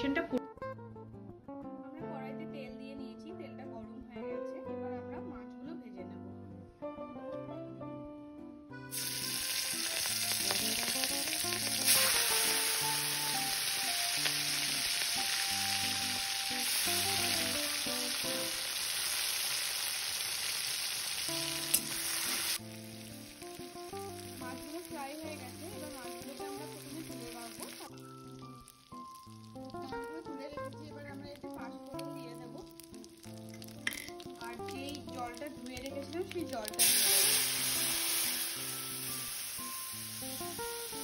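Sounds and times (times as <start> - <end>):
prawns sizzling in hot oil: 8.9 - 41.0.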